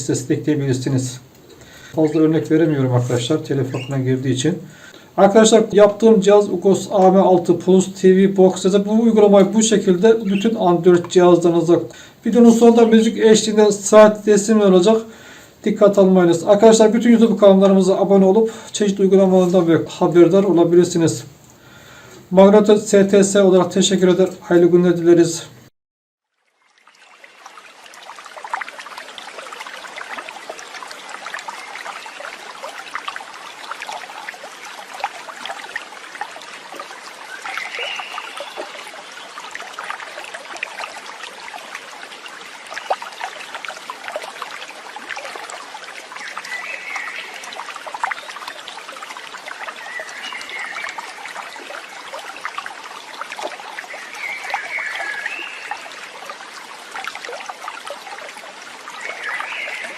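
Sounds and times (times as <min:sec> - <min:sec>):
stream water babbling: 0:00.0 - 0:25.4, 0:26.2 - 0:59.9
bird calls: 0:03.5 - 0:04.1, 0:10.2 - 0:11.0, 0:37.3 - 0:39.2, 0:46.2 - 0:47.5, 0:49.7 - 0:51.1, 0:53.9 - 0:55.8, 0:59.0 - 0:59.9.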